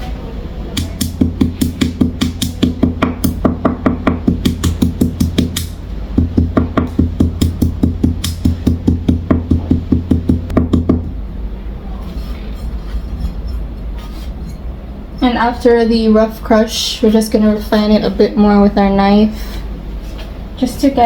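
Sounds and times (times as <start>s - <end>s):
seeds being pounded: 0.8s - 11.2s.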